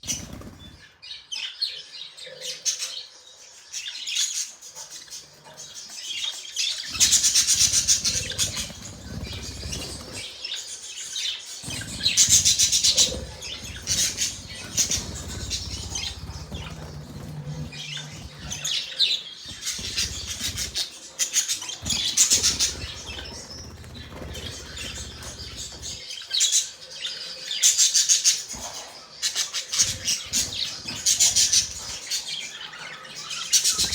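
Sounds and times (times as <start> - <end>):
budgerigars chirping and chattering: 0.0 - 33.9.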